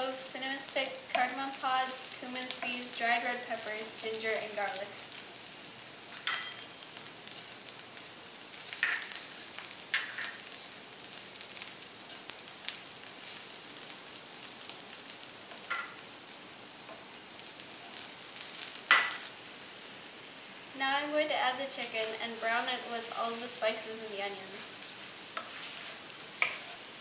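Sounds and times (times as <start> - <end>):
onions sizzling in hot oil: 0.0 - 27.0
metallic clinks of stirring: 6.2 - 7.0.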